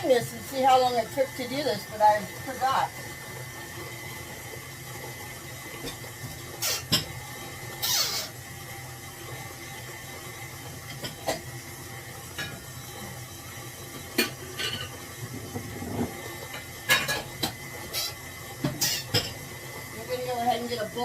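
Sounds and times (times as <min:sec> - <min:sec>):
utensil clinking against a bowl: 0:13.9 - 0:19.4.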